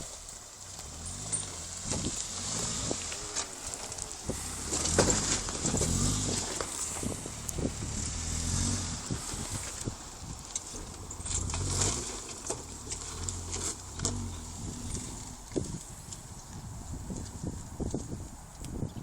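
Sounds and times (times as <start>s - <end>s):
engine revving under load: 0.7s - 15.8s.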